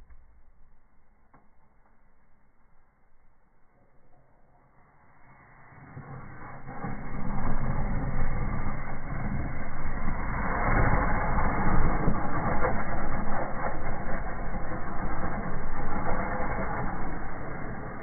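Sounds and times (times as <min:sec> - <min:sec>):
fire crackling in fireplace: 0:05.6 - 0:18.0.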